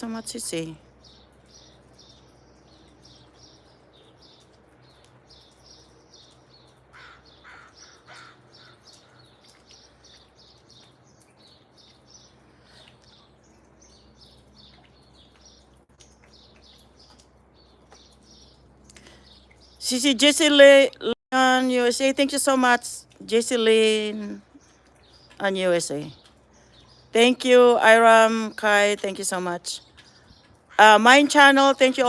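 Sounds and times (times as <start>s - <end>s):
small birds chirping: 0.0s - 32.0s
harsh bird calls: 1.0s - 19.9s.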